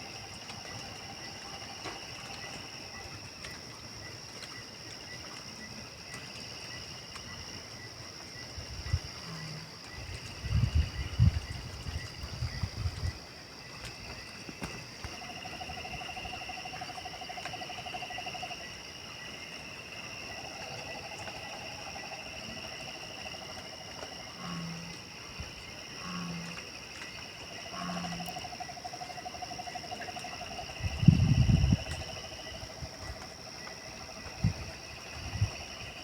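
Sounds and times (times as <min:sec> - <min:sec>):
insects trilling: 0:00.0 - 0:36.0.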